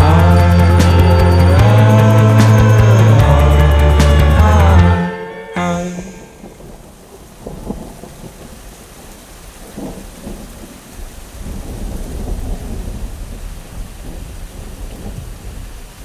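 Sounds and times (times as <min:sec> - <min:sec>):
thunder rumbling: 0:06.0 - 0:15.8
steady rain falling: 0:06.2 - 0:16.0.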